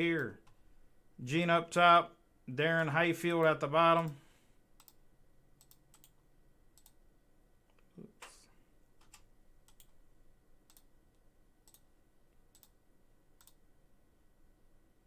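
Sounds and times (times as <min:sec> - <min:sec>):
computer key or mouse clicks: 0:04.8 - 0:05.0, 0:05.6 - 0:06.2, 0:06.8 - 0:07.0, 0:09.0 - 0:10.0, 0:10.7 - 0:10.9, 0:11.6 - 0:11.9, 0:12.5 - 0:12.8, 0:13.4 - 0:13.6.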